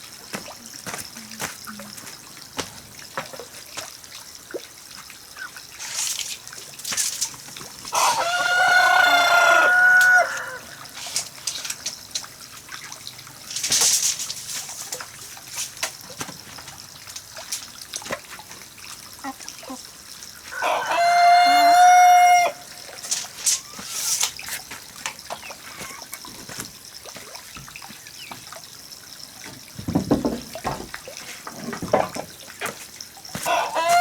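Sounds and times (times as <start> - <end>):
rooster crowing: 7.9 - 11.0, 20.5 - 23.0, 33.4 - 34.0.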